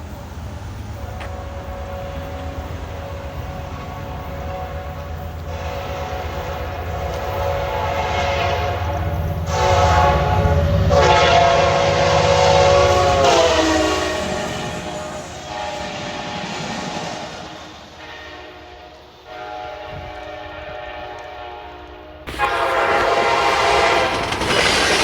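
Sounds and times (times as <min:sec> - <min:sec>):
train chime horn blasts: 0:01.1 - 0:24.4
locomotive engine rumbling: 0:21.8 - 0:25.0.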